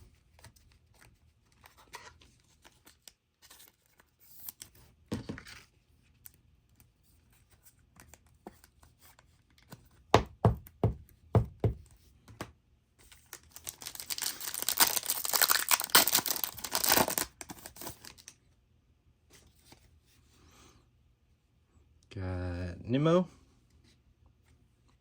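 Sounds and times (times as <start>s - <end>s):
card pack wrapper tearing: 13.1s - 18.3s.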